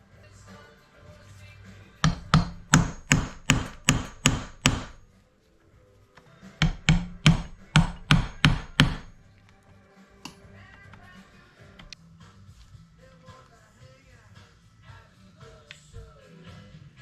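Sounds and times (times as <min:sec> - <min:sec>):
hammer tapping: 0:02.0 - 0:05.0, 0:06.6 - 0:09.3.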